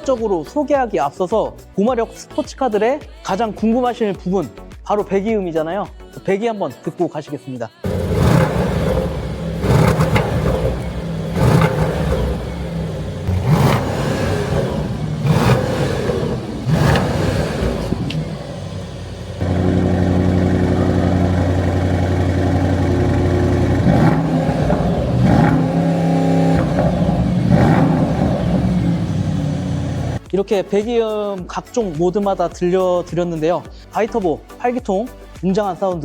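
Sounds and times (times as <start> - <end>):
car exhaust revving: 7.9 - 30.2.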